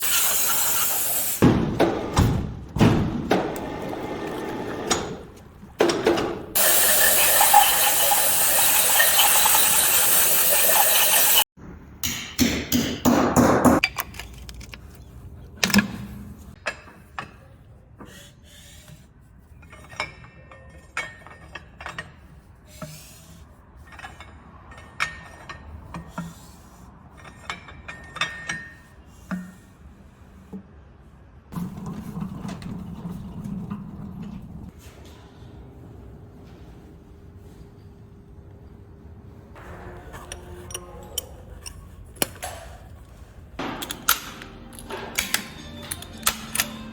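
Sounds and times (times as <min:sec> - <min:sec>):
metal knocks: 0:43.6 - 0:46.7
tool clicks: 0:43.6 - 0:46.9.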